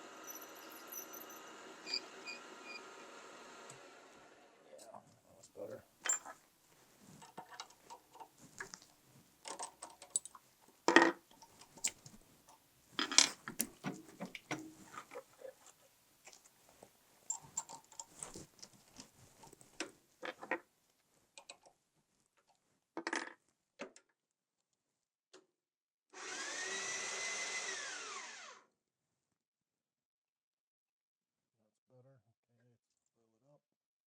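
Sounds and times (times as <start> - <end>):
metal tools clinking on workbench: 6.0 - 6.4.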